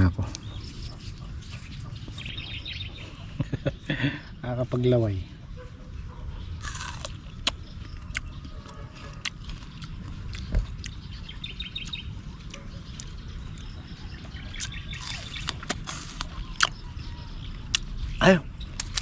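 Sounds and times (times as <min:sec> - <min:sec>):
birds chirping: 0:00.0 - 0:19.0
sharp clicks: 0:18.7 - 0:19.0.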